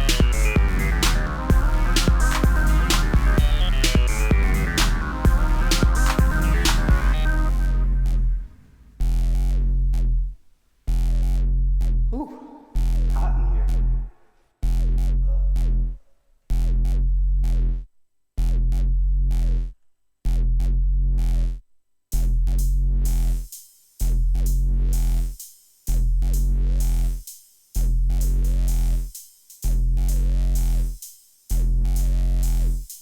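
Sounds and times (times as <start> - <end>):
synth bass tone: 0.0 - 10.2.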